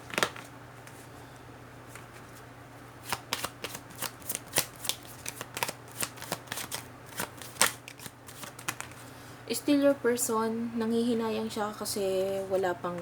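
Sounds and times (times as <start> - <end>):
cards being shuffled: 0.0 - 1.0, 3.0 - 9.0.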